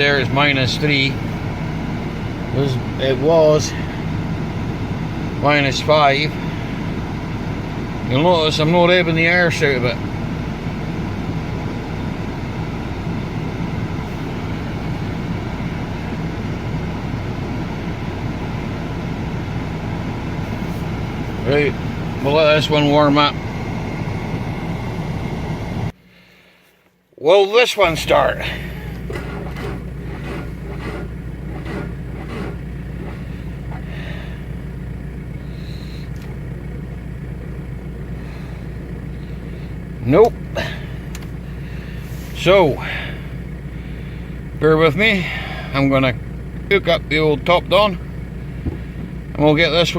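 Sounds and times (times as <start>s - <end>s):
diesel car engine idling: 0.0s - 26.8s, 27.7s - 49.9s
short engine knocks: 27.9s - 34.3s, 48.4s - 49.4s.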